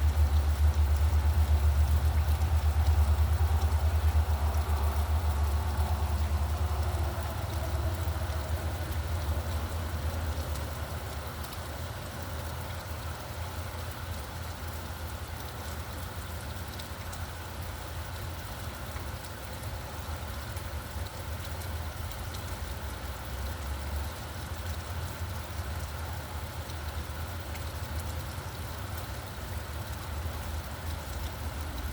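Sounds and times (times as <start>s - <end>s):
traffic rumble: 0.0s - 12.2s
steady rain falling: 0.0s - 31.9s
vehicle driving away: 1.1s - 11.0s.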